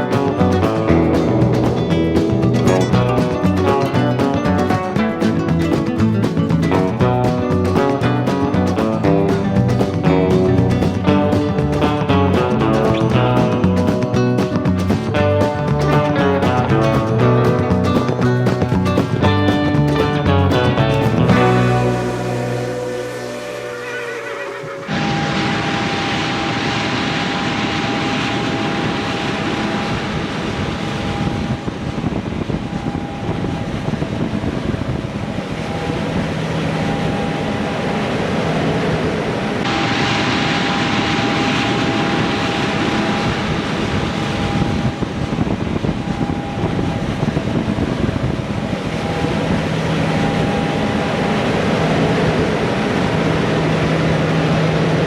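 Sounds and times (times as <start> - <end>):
deep hum: 0.0 - 32.2
heavy machinery engine noise: 0.0 - 55.0
machine whine: 0.0 - 55.0.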